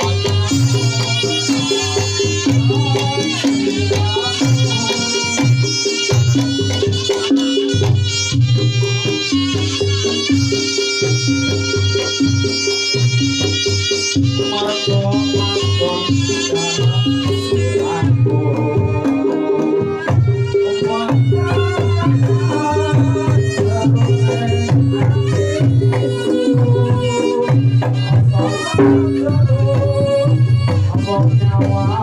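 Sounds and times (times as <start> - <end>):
hand drums beating brisk rhythm: 0.0 - 32.0
melody line: 28.6 - 30.5
pitched gong tones: 28.8 - 29.7.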